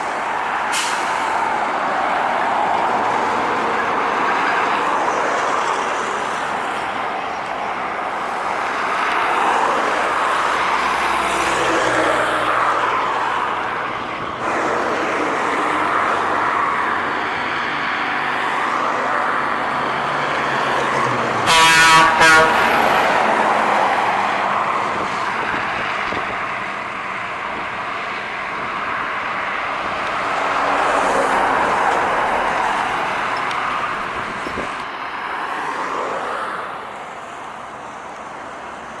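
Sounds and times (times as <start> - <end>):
trucks passing on highway: 0.0 - 39.0
truck horn double blast: 21.4 - 23.3.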